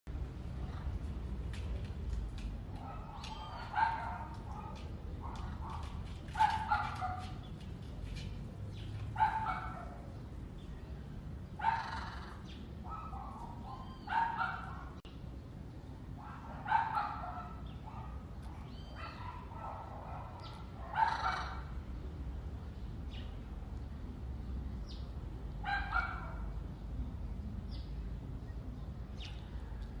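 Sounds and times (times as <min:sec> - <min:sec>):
parrot barking calls: 0:11.6 - 0:15.0, 0:16.2 - 0:21.7.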